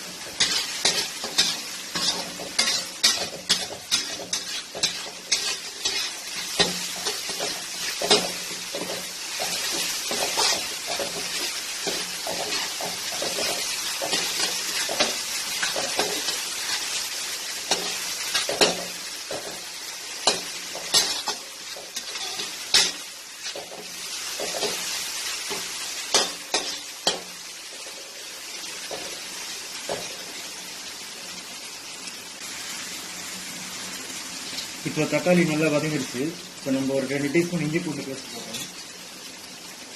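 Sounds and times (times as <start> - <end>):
spoon scraping a pan: 0.0 - 28.1
vegetables sizzling in a pan: 0.0 - 39.9.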